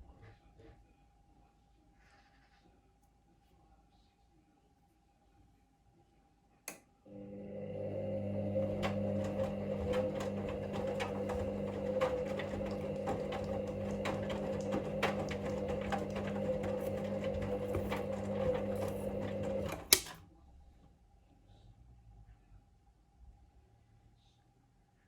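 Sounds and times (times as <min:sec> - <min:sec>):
washing machine motor humming: 0:07.1 - 0:20.2
knocks from tumbling load: 0:08.5 - 0:20.2.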